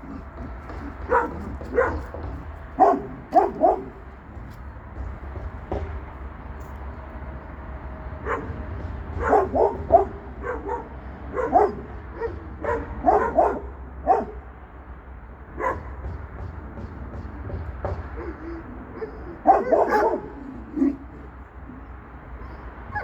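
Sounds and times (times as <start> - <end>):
dog barking and yipping: 0.0 - 4.1, 8.2 - 14.4, 15.6 - 16.1, 18.1 - 23.0.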